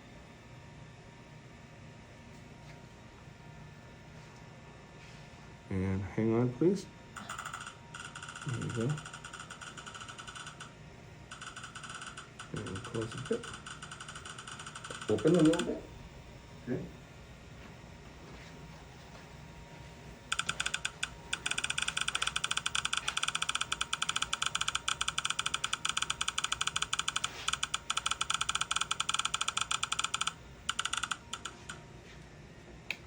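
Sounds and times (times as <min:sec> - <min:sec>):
fast run of sharp clicks: 0:07.2 - 0:10.7, 0:11.3 - 0:15.8, 0:20.3 - 0:31.8.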